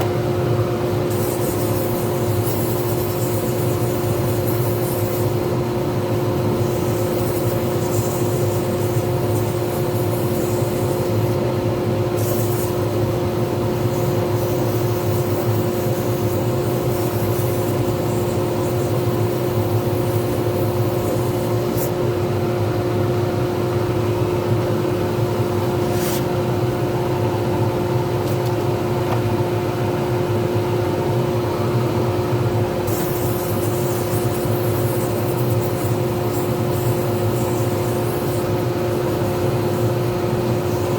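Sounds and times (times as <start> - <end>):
lathe motor hum and whine: 5.3 - 7.8, 8.6 - 12.2, 12.8 - 32.9, 36.0 - 40.9.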